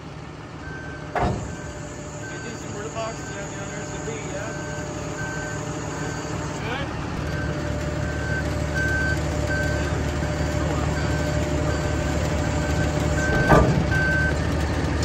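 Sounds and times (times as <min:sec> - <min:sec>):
lift truck engine running: 0:00.0 - 0:15.0
warning alarm beeping: 0:00.7 - 0:14.4.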